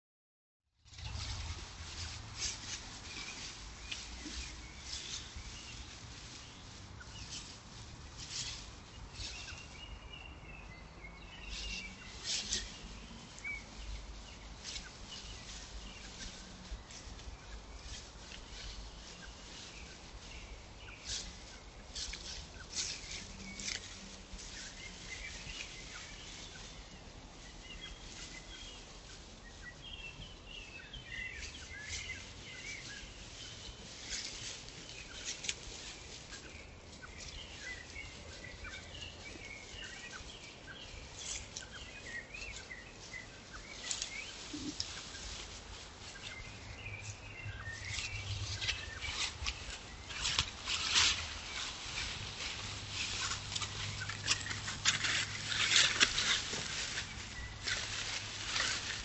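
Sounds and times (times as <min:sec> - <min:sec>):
small birds chirping: 0:00.9 - 0:59.0.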